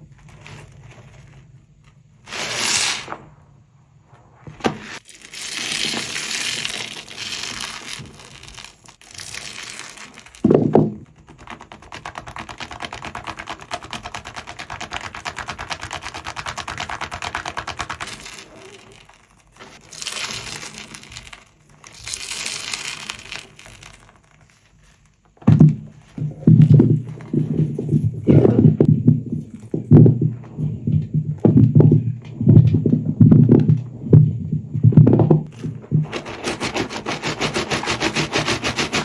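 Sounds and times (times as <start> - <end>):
dull thump: 25.4 - 36.1
sponge squelching in foam: 35.5 - 39.0.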